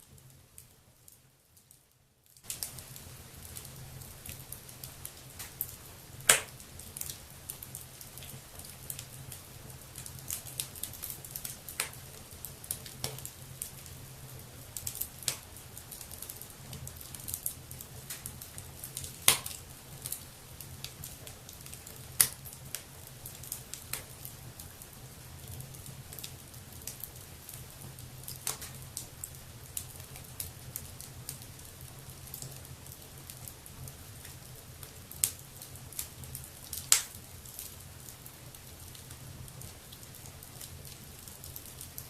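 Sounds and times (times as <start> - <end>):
wood fire crackling: 0.0 - 42.0
loud fire pops: 5.1 - 7.2, 19.1 - 20.2, 36.7 - 37.2.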